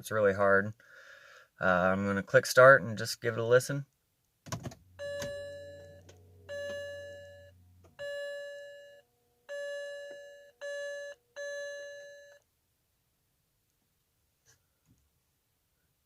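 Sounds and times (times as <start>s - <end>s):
low steady hum: 4.7s - 14.1s
car electronic warning chime: 4.8s - 12.4s.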